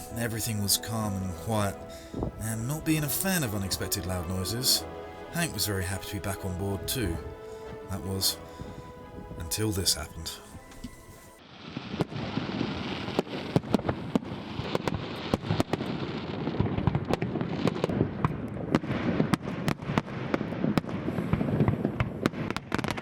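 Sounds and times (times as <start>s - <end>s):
fireworks crackling: 0.0s - 23.0s
fireworks bangs and pops: 11.6s - 23.0s.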